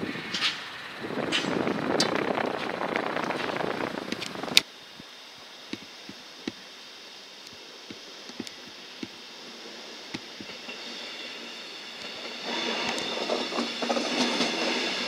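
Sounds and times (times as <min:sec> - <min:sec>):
loud train noise: 0:00.0 - 0:06.1, 0:06.9 - 0:15.0
train approaching over points: 0:08.8 - 0:15.0.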